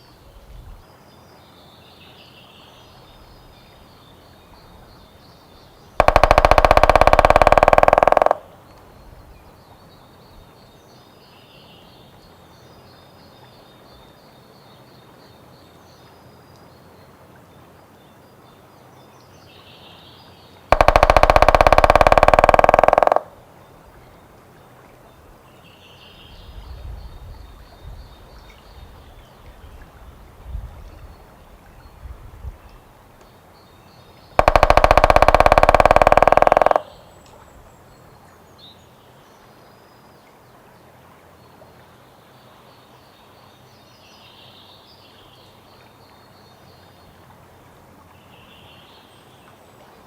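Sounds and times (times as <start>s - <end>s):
woodpecker drumming on wood: 6.0s - 8.8s, 20.7s - 23.4s, 34.4s - 37.0s.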